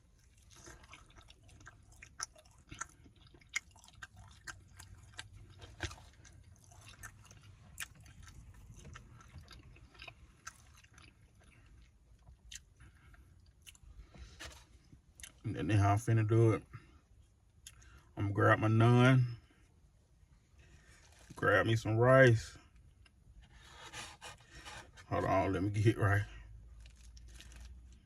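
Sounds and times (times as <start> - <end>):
person chewing wetly: 0.0 - 15.4, 17.5 - 18.1.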